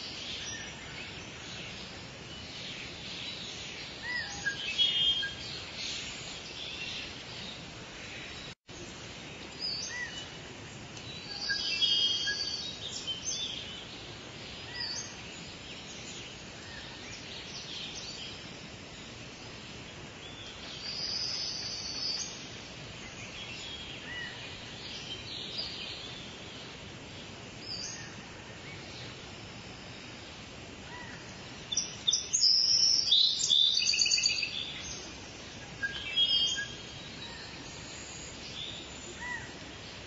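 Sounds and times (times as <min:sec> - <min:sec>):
birds chirping and trilling: 0:00.0 - 0:40.0
steady background hiss: 0:00.0 - 0:40.0.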